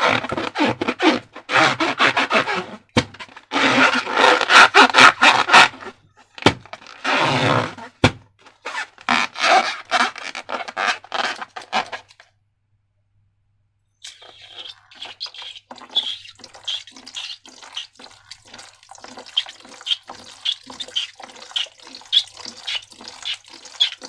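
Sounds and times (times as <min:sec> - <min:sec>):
slime squelching: 0:14.0 - 0:24.0.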